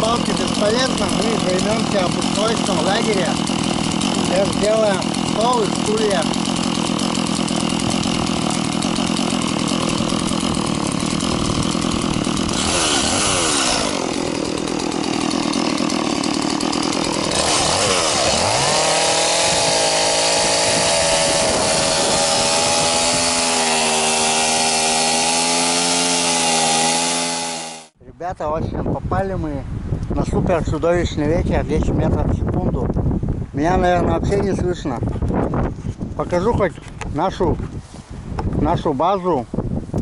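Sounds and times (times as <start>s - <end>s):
chainsaw running under load: 0.0s - 28.0s.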